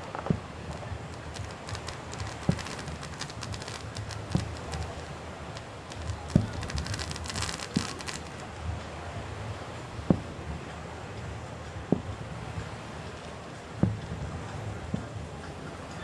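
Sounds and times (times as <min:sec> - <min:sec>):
fireworks booming: 0:00.0 - 0:08.8
fireworks crackling: 0:00.0 - 0:09.4.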